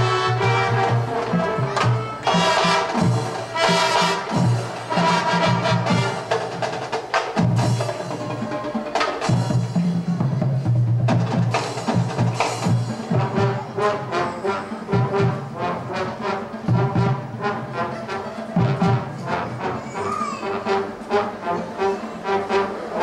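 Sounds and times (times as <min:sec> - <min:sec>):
low brass notes: 0:00.0 - 0:09.8, 0:10.4 - 0:23.0
drum strokes: 0:00.0 - 0:14.1.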